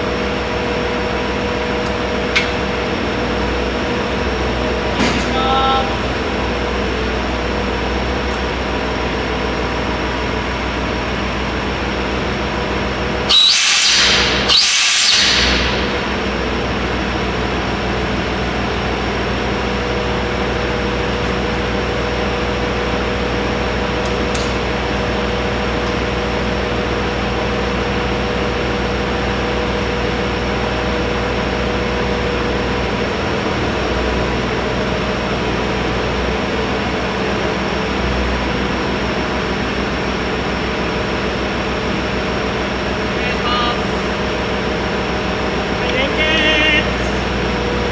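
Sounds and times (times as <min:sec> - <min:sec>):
railcar engine hum and whine: 0:00.0 - 0:47.9
compressed air hiss: 0:13.3 - 0:16.3.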